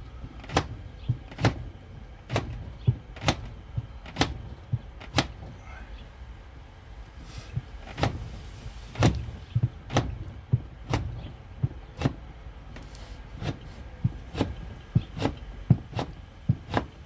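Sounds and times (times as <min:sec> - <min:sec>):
sharp clicks: 0:00.2 - 0:05.6
tool stroked on leather strop: 0:07.2 - 0:17.0.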